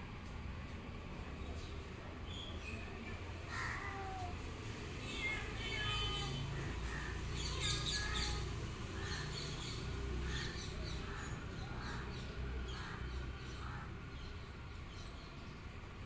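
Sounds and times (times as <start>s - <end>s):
small birds chirping: 5.0s - 15.8s.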